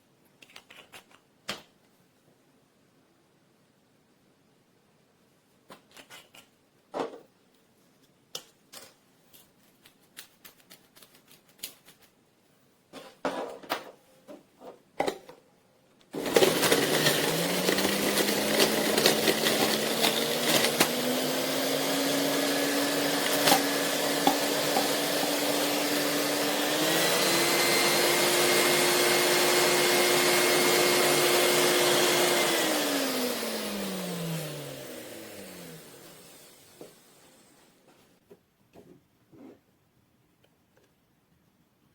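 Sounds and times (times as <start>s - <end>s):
juicer motor whining: 16.2s - 37.2s.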